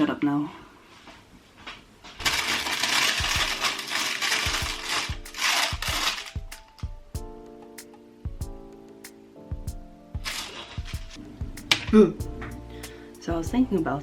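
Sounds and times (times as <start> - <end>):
music with plucked notes: 3.1 - 14.0.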